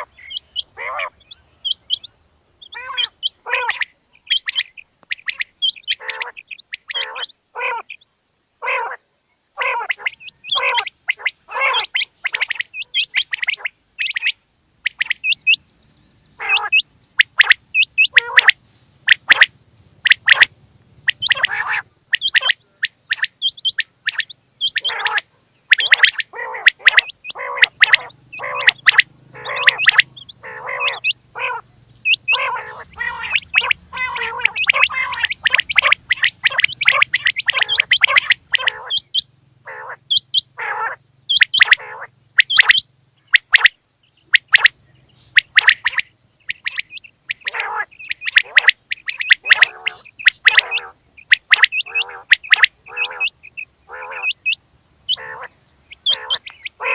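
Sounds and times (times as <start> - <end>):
quail calling: 0.0 - 9.0, 9.6 - 15.6, 16.4 - 56.9.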